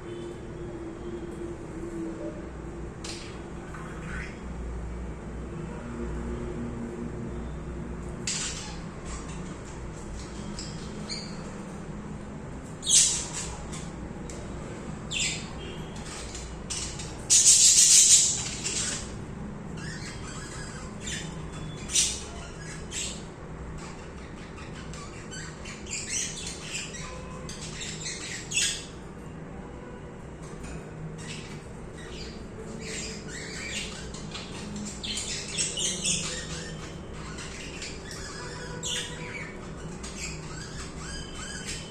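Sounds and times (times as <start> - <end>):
budgerigars chirping and squawking: 3.0 - 4.5, 8.2 - 11.7, 12.6 - 14.4, 15.0 - 29.0, 31.2 - 41.9.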